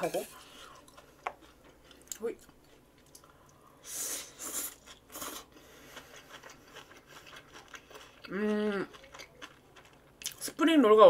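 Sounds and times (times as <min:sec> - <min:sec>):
soft chewing: 0:00.1 - 0:03.7, 0:04.5 - 0:10.4
crunchy food being bitten: 0:04.8 - 0:10.4
person humming: 0:08.3 - 0:08.9.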